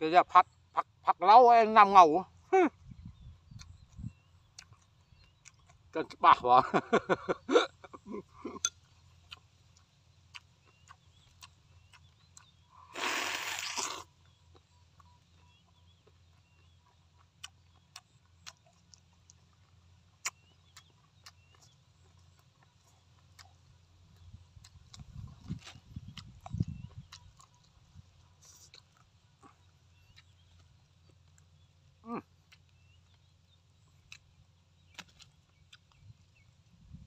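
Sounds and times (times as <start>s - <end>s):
biting and chewing: 2.8s - 6.2s, 7.1s - 36.8s
chewing mouth clicks: 3.0s - 6.2s, 8.5s - 36.4s
faint bird chirps: 8.0s - 18.3s.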